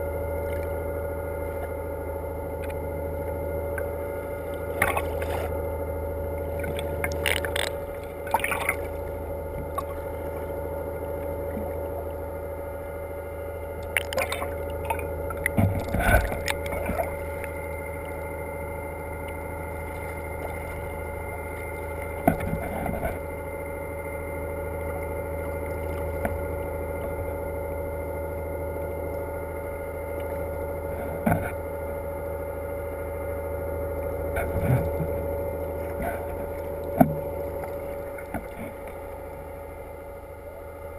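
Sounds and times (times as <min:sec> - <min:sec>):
boat engine humming: 0:00.0 - 0:40.9
knocks and clatters on boat: 0:13.9 - 0:17.6, 0:22.0 - 0:23.3, 0:30.9 - 0:31.7, 0:34.3 - 0:39.1.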